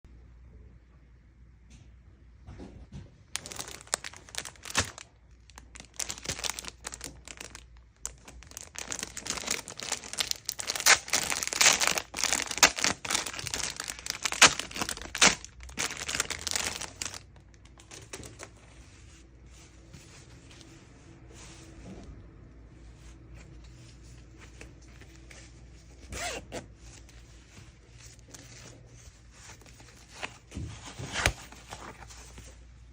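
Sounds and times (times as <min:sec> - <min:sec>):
plastic packaging crackling: 0:03.3 - 0:18.6.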